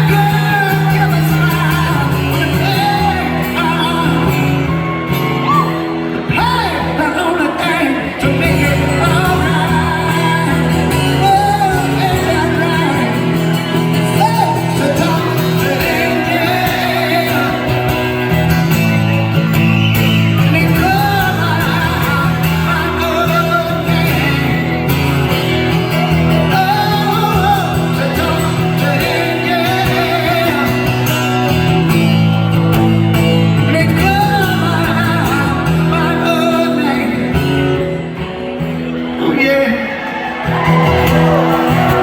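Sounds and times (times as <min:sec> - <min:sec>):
person singing: 0:00.0 - 0:18.4, 0:20.3 - 0:32.4
rock band playing live: 0:00.0 - 0:42.0.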